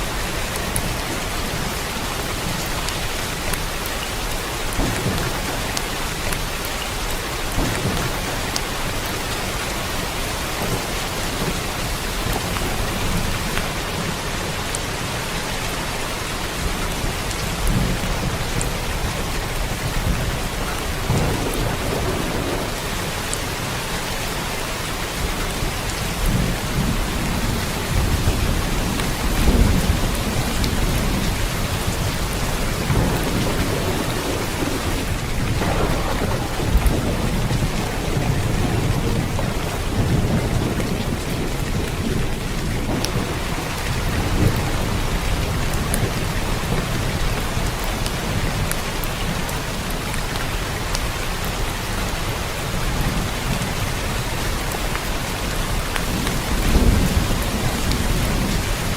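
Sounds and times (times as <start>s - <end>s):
steady rain hiss: 0.0s - 58.9s
low rumble: 33.2s - 40.2s.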